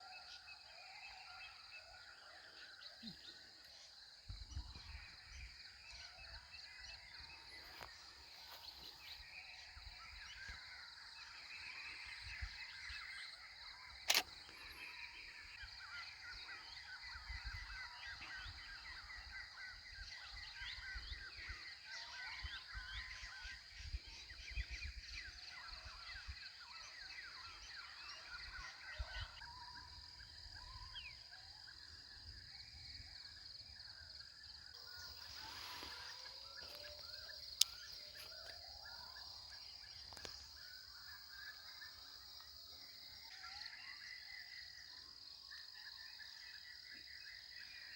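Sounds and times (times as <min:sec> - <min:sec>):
birds chirping in chorus: 0:00.0 - 0:47.9
sharp click: 0:14.0 - 0:14.6.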